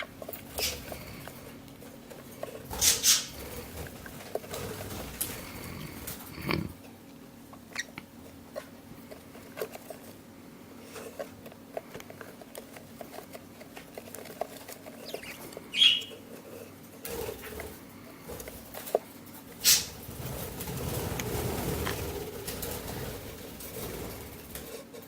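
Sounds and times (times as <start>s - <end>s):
light taps and scratches: 10.8s - 25.0s
chick chirp: 15.0s - 16.2s.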